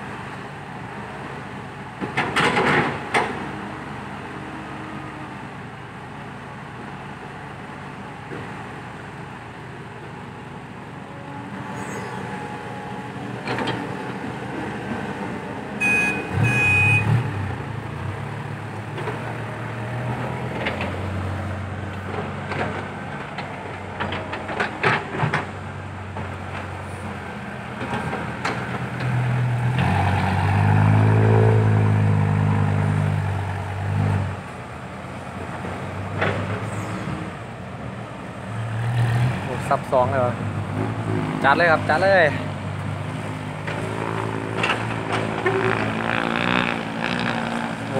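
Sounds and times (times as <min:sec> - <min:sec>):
diesel truck engines under load: 0:00.0 - 0:47.9
short high beeps: 0:15.8 - 0:17.2.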